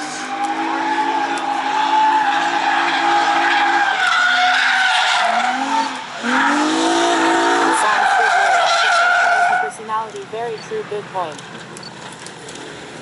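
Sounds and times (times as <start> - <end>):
tire squeal: 0.0 - 9.8
car engines revving: 0.0 - 13.0.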